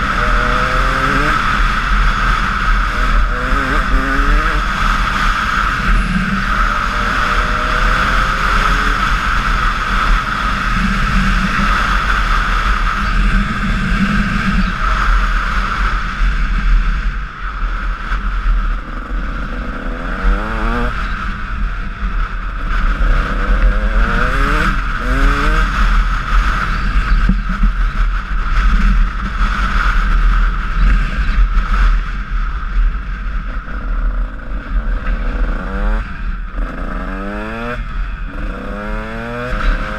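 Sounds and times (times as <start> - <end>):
motocross bike engine revving: 0.0 - 15.1, 18.8 - 21.1, 22.6 - 26.0, 33.6 - 39.9.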